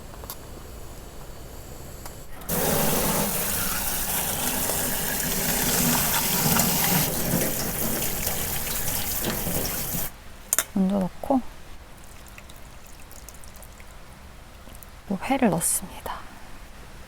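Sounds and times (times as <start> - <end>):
water pouring in a stream: 2.5 - 10.1.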